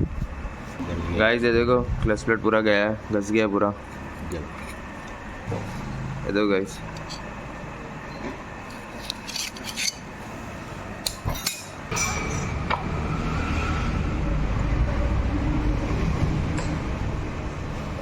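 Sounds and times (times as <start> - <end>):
metal parts clinking: 8.7 - 10.0.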